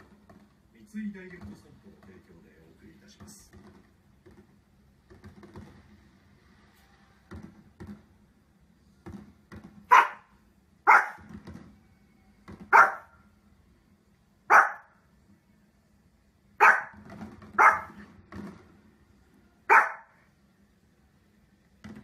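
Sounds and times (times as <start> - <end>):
small dog barking sharply: 9.9 - 11.3, 12.7 - 13.1, 14.5 - 14.9, 16.6 - 17.0, 17.6 - 18.0, 19.7 - 20.2.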